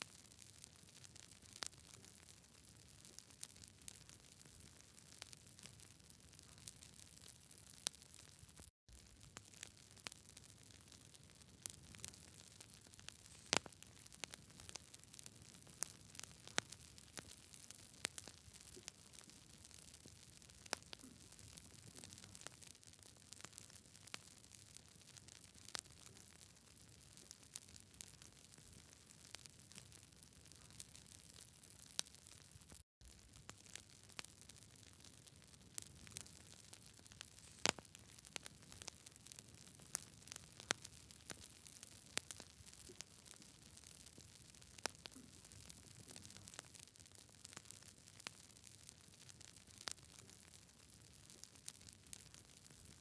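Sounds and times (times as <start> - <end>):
campfire wood crackling and popping: 0.0 - 53.0
low hiss of burning: 0.1 - 53.0
faint steady hiss: 11.5 - 15.0, 37.0 - 38.8.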